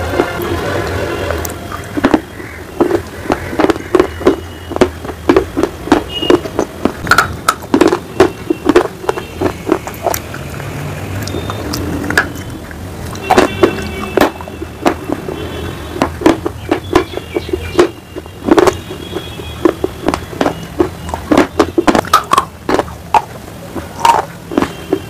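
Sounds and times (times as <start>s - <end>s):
crunching of hard clay being chewed: 1.2s - 25.0s.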